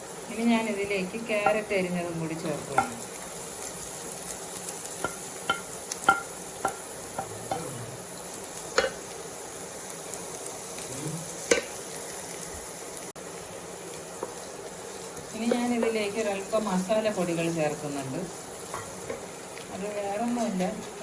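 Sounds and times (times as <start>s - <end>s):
vegetables sizzling in a pan: 0.0s - 21.0s
spoon clicking against pan: 5.0s - 6.9s.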